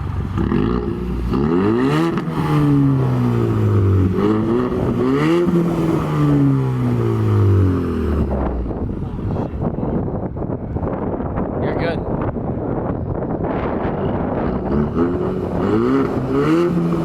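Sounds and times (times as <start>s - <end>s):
loud car engine revving: 0.0s - 9.0s, 13.4s - 17.0s.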